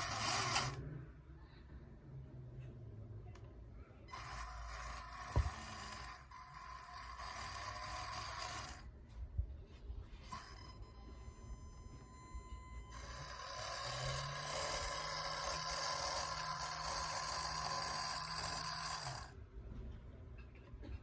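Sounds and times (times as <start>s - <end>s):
small electric motor whining: 0.0s - 0.8s, 4.1s - 8.9s, 10.2s - 19.4s.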